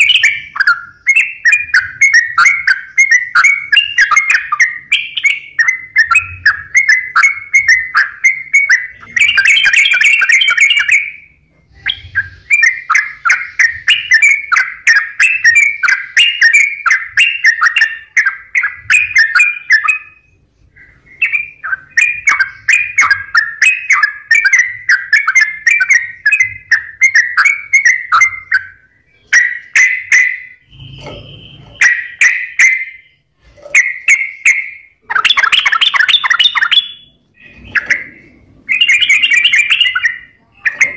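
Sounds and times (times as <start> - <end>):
bulbul bubbling song: 0.0 - 40.9.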